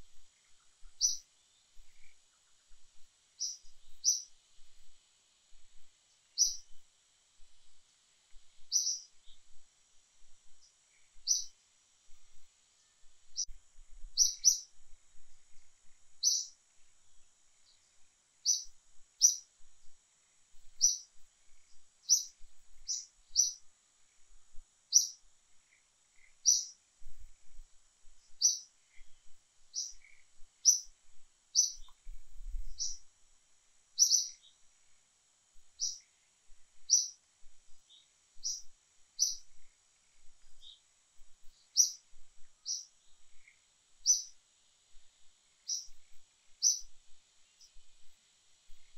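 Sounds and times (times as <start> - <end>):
bird chirping: 0.1 - 2.8, 3.4 - 4.4, 6.4 - 6.8, 8.6 - 9.6, 10.5 - 11.6, 12.8 - 13.6, 14.2 - 14.7, 16.2 - 16.6, 17.6 - 19.5, 20.7 - 23.7, 24.9 - 26.8, 28.2 - 33.1, 34.0 - 34.7, 35.7 - 36.1, 36.8 - 37.2, 37.8 - 44.4, 45.6 - 47.8.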